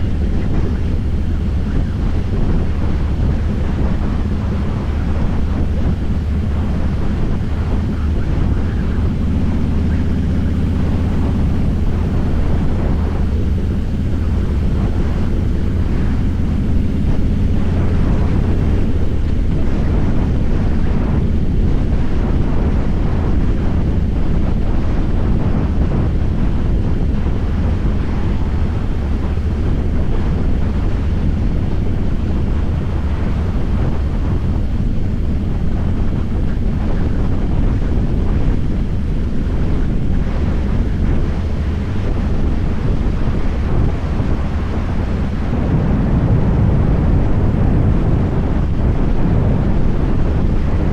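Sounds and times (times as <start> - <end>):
motorcycle engine running: 0.0 - 50.9
wind rushing over microphone: 0.0 - 50.9.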